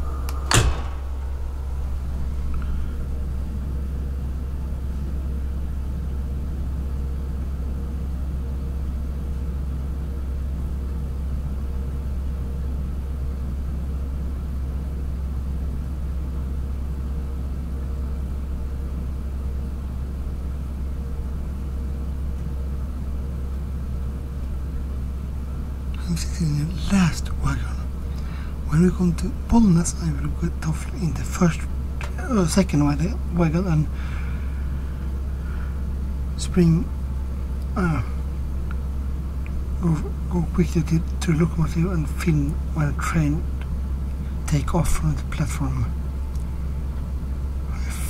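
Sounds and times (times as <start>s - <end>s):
sharp click: 0.2s - 1.3s.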